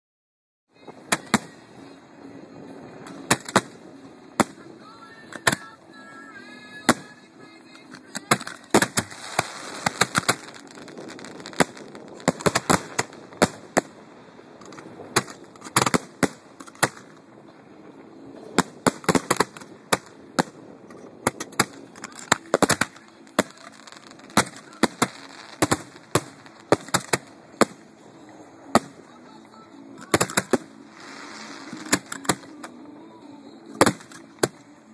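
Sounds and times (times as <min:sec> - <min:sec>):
fireworks exploding: 0:02.7 - 0:05.8, 0:06.8 - 0:29.3, 0:30.0 - 0:32.9.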